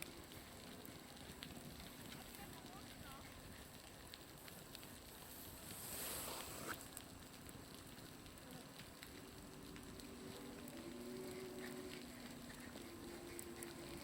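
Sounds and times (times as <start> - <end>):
small ticks and pops: 0.0 - 5.8, 6.7 - 14.0
meltwater dripping from roof: 0.0 - 14.0
brief hiss: 5.7 - 6.8.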